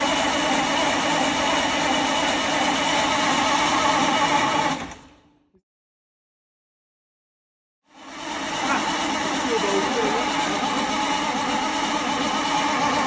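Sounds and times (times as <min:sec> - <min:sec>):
coach engine running: 0:08.0 - 0:13.0.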